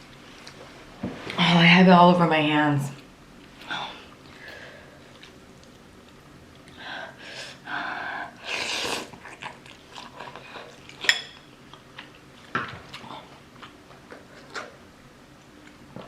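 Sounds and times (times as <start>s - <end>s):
person sniffing: 8.4s - 9.1s
noodle slurping: 8.4s - 10.8s.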